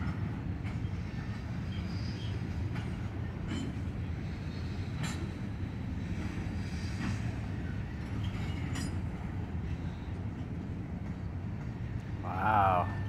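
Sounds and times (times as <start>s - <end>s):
steel wheels rumbling on rail: 0.0s - 13.0s.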